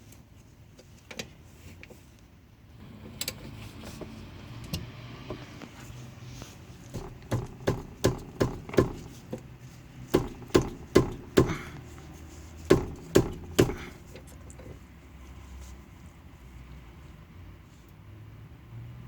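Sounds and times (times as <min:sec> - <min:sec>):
hand tools knocking on metal: 0:06.9 - 0:09.4, 0:10.1 - 0:11.8, 0:12.7 - 0:14.0.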